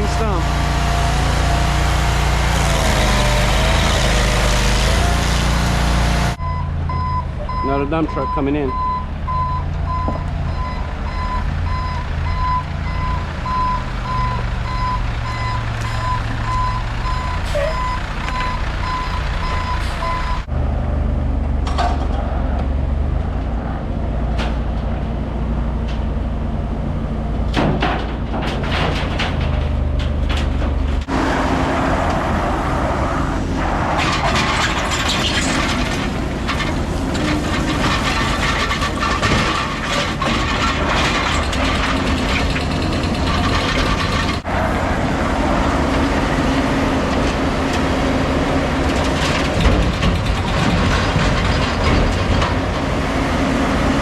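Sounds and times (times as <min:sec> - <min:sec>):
machinery clattering and scraping: 0:00.0 - 0:06.4, 0:27.4 - 0:53.5
diesel engine running: 0:00.0 - 0:54.0
reversing alarm beeping: 0:06.4 - 0:20.5
machinery knocks: 0:40.3 - 0:44.5, 0:49.3 - 0:52.6.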